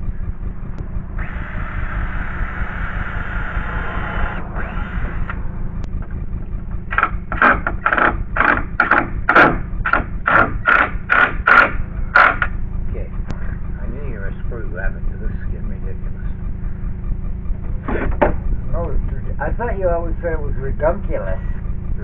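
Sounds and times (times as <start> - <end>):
cordless screw gun running: 6.9 - 12.5.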